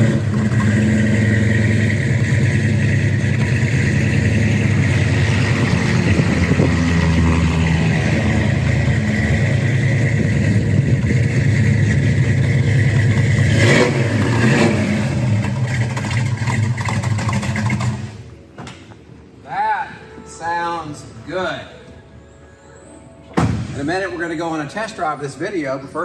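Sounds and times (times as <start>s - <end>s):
car engine idling: 0.0s - 19.2s.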